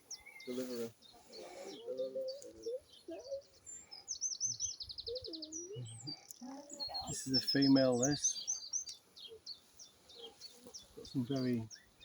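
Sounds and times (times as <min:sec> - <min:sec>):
garden birds chirping and singing: 0:00.0 - 0:12.0.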